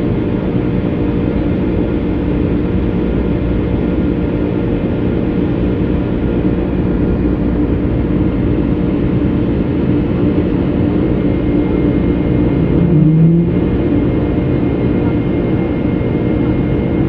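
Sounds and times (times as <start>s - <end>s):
airliner engine drone in cabin: 0.0s - 17.0s
steady hum: 1.7s - 17.0s
brief low hum: 12.0s - 14.3s.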